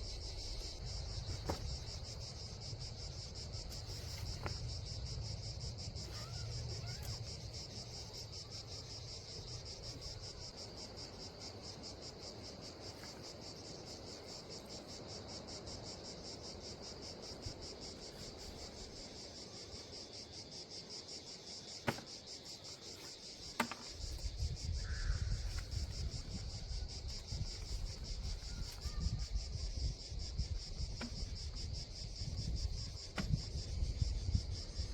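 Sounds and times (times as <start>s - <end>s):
insects chirring: 0.0s - 34.9s.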